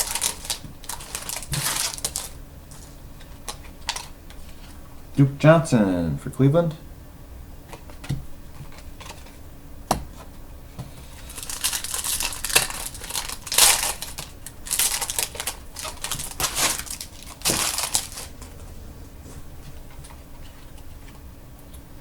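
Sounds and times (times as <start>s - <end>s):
foil wrapper crinkling: 0.0s - 4.7s, 11.0s - 18.6s.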